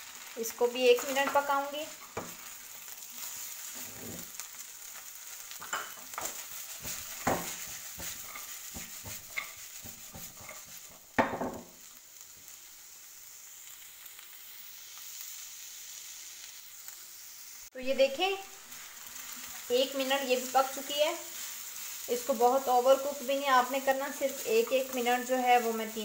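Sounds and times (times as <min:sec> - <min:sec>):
food sizzling in a wok: 0:00.0 - 0:26.0
spatula scraping and knocking pan: 0:01.0 - 0:02.5, 0:03.2 - 0:04.5, 0:05.5 - 0:11.8.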